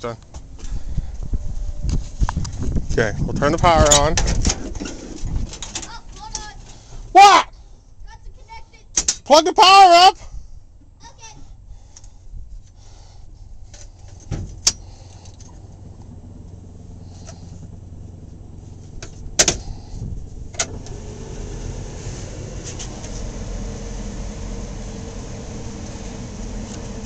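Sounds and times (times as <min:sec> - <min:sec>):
heater blower motor humming: 0:13.7 - 0:27.0.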